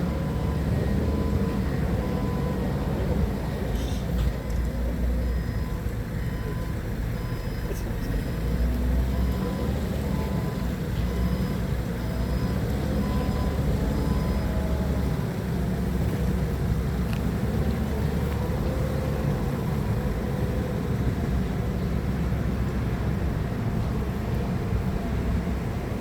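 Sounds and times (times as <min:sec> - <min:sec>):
reversing alarm beeping: 0:00.0 - 0:03.2, 0:04.4 - 0:15.3
forklift engine running: 0:00.0 - 0:26.0.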